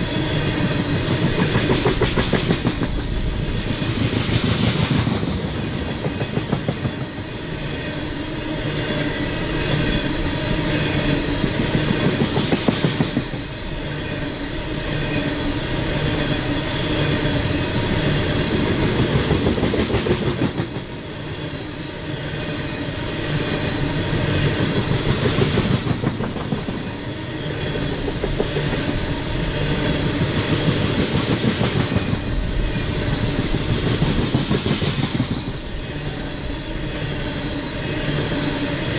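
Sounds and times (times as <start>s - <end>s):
train wheels clacking over rail joints: 1.0s - 3.1s, 11.5s - 13.5s, 24.4s - 26.9s.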